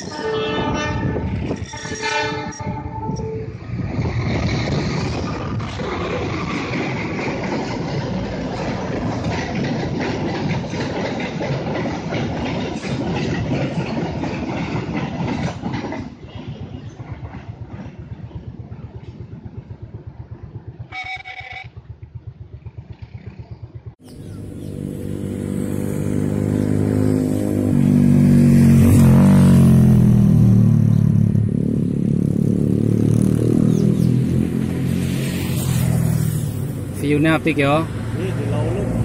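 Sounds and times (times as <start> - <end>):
train wheels clicking over rail joints: 3.7 - 21.0
motor vehicle engine running: 17.5 - 39.0
short beep: 20.9 - 21.7.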